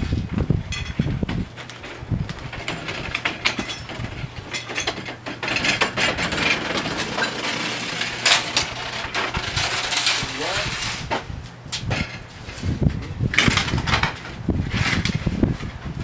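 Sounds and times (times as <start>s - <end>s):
metal parts clicking and clattering: 1.8s - 11.2s.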